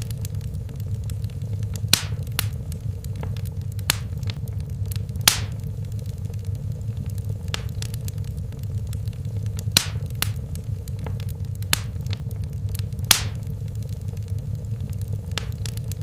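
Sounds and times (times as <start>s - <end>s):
fire crackles and pops: 0.0s - 16.0s
fire low rumble: 0.0s - 16.0s.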